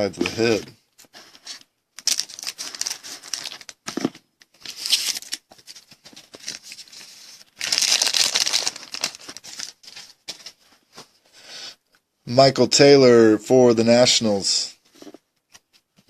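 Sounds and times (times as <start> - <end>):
card pack wrappers crinkling: 1.5 - 10.6.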